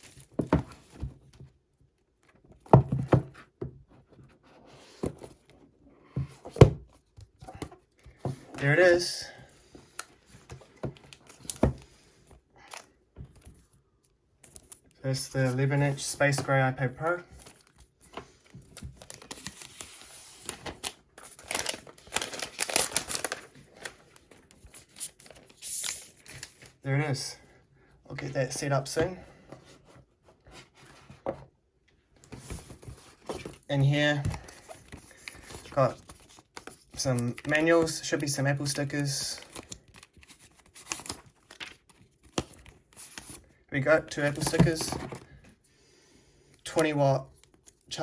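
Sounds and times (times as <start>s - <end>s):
packaging rustle: 18.6s - 26.8s.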